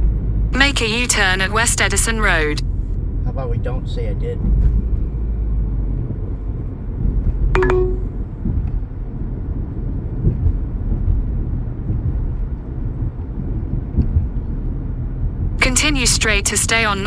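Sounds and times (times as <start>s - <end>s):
car cabin road noise: 0.0s - 7.4s
short tone: 7.6s - 8.2s.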